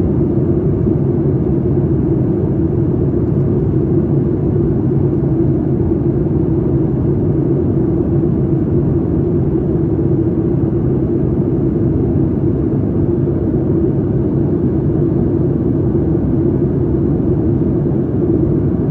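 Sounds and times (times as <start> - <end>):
airplane cabin engine drone: 0.0 - 18.9.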